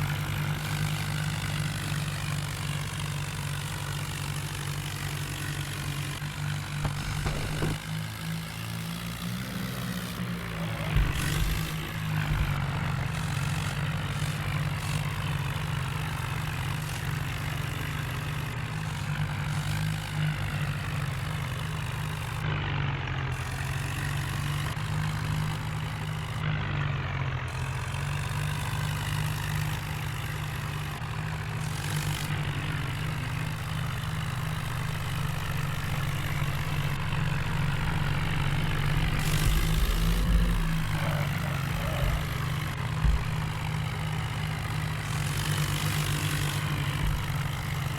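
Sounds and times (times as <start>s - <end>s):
diesel engine droning: 0.0s - 47.9s
sharp knocks: 6.8s - 7.8s, 10.9s - 13.2s, 32.3s - 44.0s.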